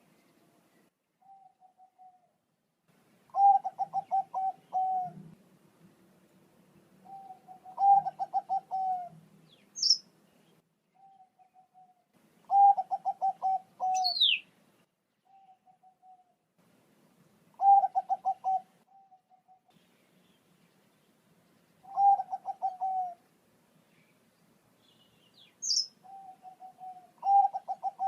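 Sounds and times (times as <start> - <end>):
dove cooing: 1.2 - 2.3, 3.3 - 5.4, 7.0 - 9.2, 11.0 - 14.4, 15.3 - 16.3, 17.6 - 19.7, 21.8 - 23.2, 25.6 - 28.0
short high bird chirp: 9.6 - 10.0, 13.8 - 14.4, 24.9 - 27.4.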